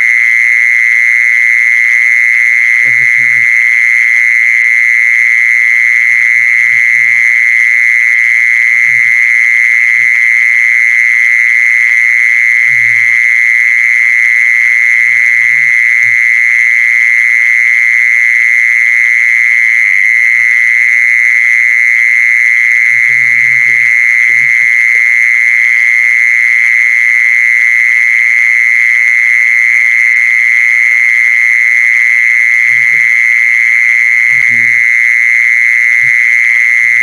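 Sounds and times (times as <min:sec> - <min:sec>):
low croaking calls: 0:01.8 - 0:04.6, 0:05.2 - 0:17.5, 0:22.7 - 0:26.1, 0:32.4 - 0:37.0.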